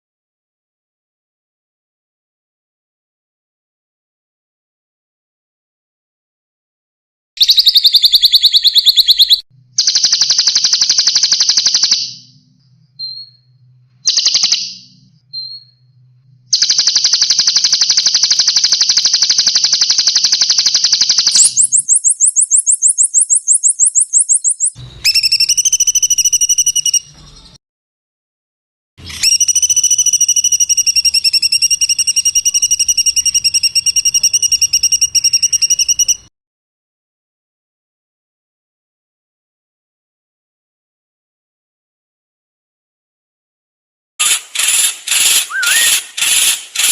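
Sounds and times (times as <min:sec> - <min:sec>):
high bird trill: 0:07.4 - 0:12.4, 0:16.5 - 0:27.6, 0:29.1 - 0:36.3, 0:44.2 - 0:46.9
rapidly pulsing bird call: 0:07.4 - 0:12.4, 0:16.5 - 0:27.4, 0:44.2 - 0:46.9
buzzy rattling bird phrases: 0:16.6 - 0:24.8, 0:44.4 - 0:46.9.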